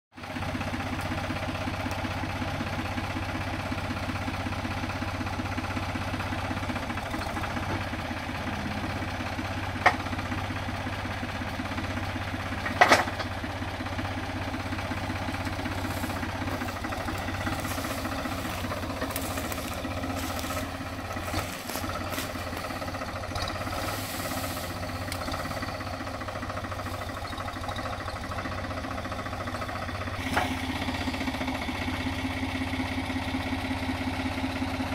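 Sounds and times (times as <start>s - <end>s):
small motor running: 14.8s - 31.9s.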